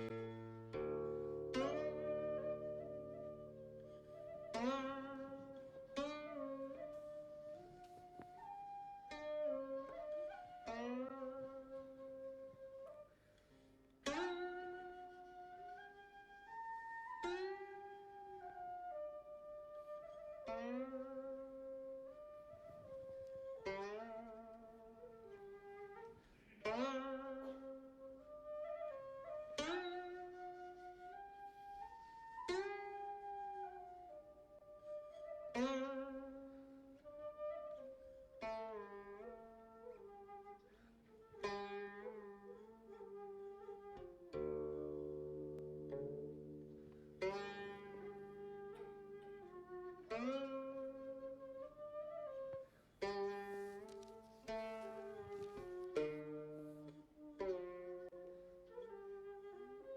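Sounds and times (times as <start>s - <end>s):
plucked string music: 0.0s - 12.1s, 34.8s - 59.9s
flute-like melody: 0.0s - 59.9s.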